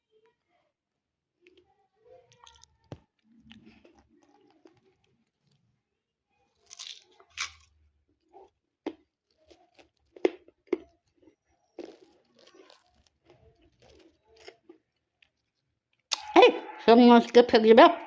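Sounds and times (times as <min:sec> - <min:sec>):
parrot beak cracking and crunching food: 0:02.3 - 0:05.7, 0:06.5 - 0:16.3.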